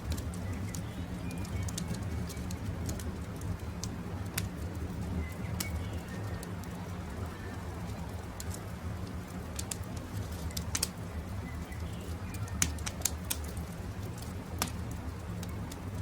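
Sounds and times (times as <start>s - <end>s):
campfire crackling and popping: 0.0s - 16.0s
faint birds calling: 10.5s - 13.0s.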